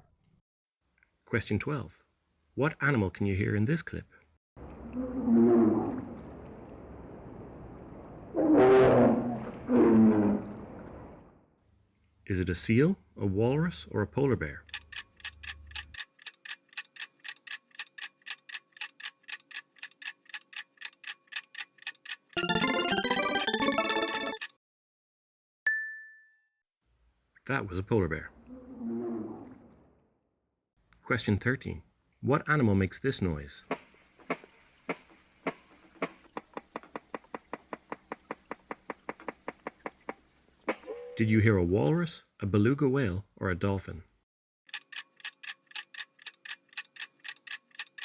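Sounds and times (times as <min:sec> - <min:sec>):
quick clock ticks: 0:14.2 - 0:24.6, 0:44.7 - 0:48.0
walrus knocking: 0:33.7 - 0:40.9.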